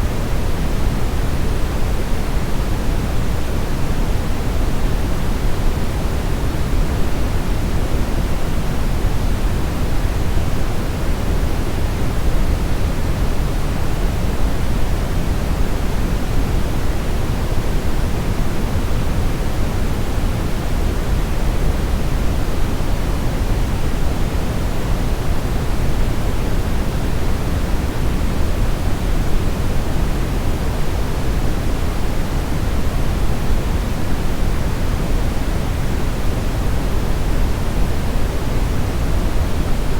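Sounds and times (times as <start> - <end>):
brown noise rumbling hiss: 0.0 - 39.9.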